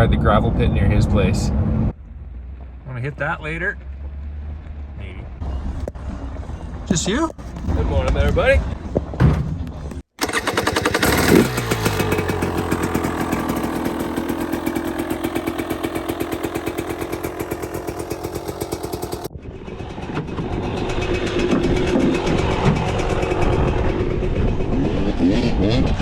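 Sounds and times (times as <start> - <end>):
dirt bike engine idling: 10.2 - 24.8.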